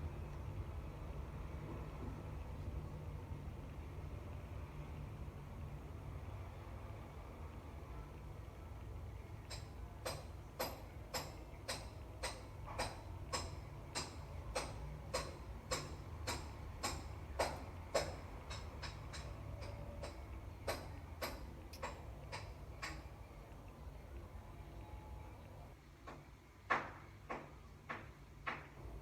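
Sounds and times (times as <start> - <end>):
low steady hum: 0.0 - 26.7
sharp taps: 9.4 - 23.0.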